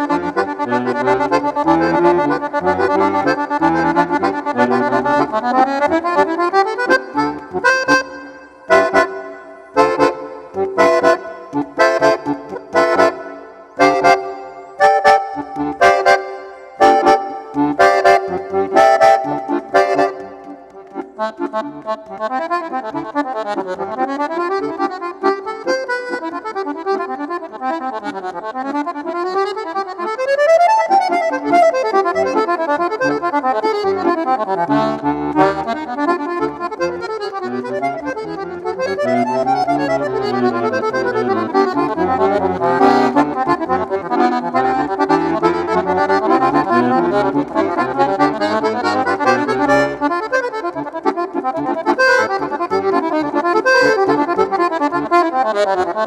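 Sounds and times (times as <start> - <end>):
accordion playing: 0.0 - 56.0.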